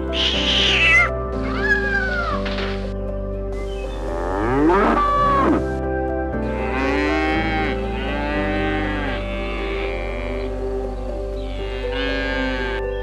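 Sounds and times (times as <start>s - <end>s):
background music with sustained notes: 0.0s - 13.0s
cows mooing: 4.0s - 5.7s, 6.5s - 13.0s.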